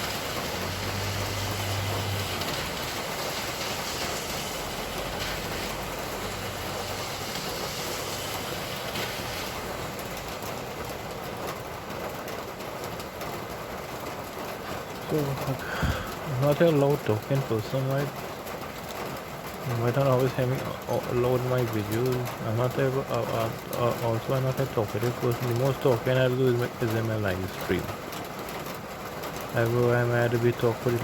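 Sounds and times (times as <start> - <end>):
engines humming: 0.0 - 11.3
tyres hissing on wet road: 0.0 - 31.0.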